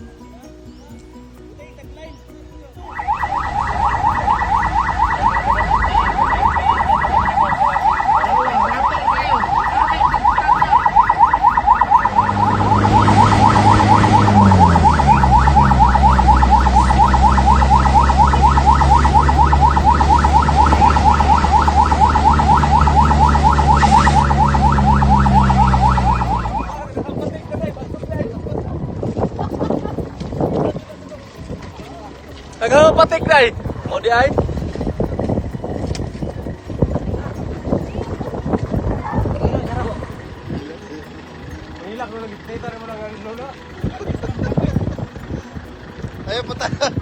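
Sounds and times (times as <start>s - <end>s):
engine running: 0.0s - 47.0s
electronic siren yelping: 2.9s - 26.9s.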